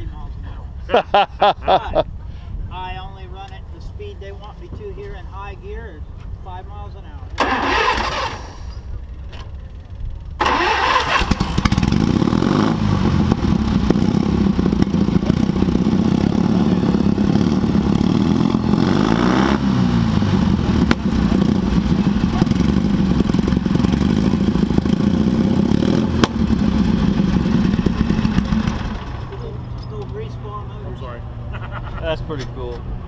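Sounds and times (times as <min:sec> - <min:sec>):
lawnmower engine running loud: 0:10.4 - 0:29.4.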